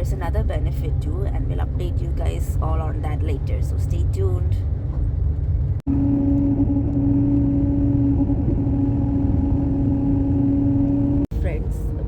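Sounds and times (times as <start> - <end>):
bus engine rumble: 0.0 - 12.0.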